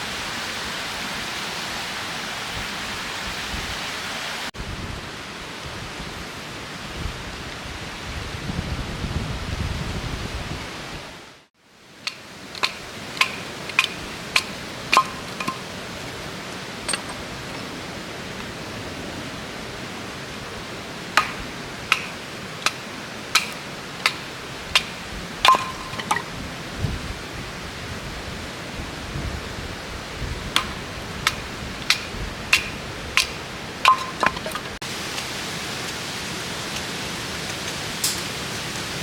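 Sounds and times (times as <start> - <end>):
wind buffeting microphone: 4.6 - 11.2, 23.3 - 34.8
hammer striking metal tent pegs: 12.0 - 15.6, 16.8 - 17.7, 21.2 - 26.4, 30.6 - 34.8, 38.0 - 38.3.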